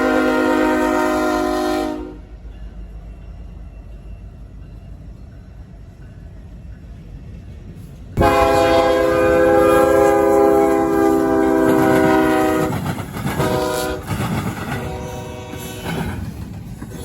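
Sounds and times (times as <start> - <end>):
locomotive air horn blasts: 0.0 - 2.3, 8.2 - 12.8, 13.4 - 14.1, 14.8 - 15.9
train rumble and wheel clatter: 0.0 - 17.0.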